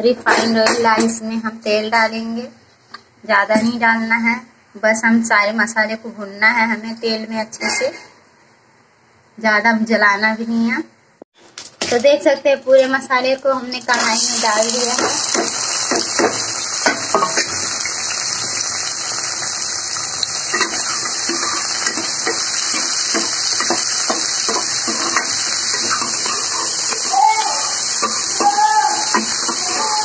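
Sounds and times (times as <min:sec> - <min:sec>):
vegetables sizzling in oil: 0:13.2 - 0:30.0
metal ladle scraping a pan: 0:20.4 - 0:30.0.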